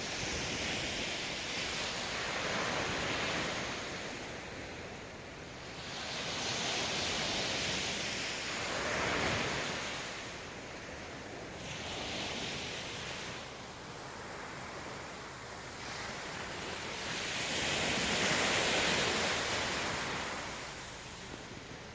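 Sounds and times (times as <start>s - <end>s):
sea waves breaking on shore: 0.0s - 21.9s.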